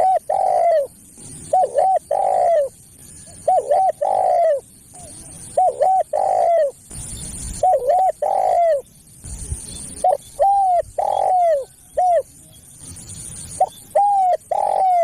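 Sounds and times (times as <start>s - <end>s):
dove cooing: 0.0s - 6.8s, 7.6s - 8.8s, 9.9s - 12.3s, 13.6s - 15.0s.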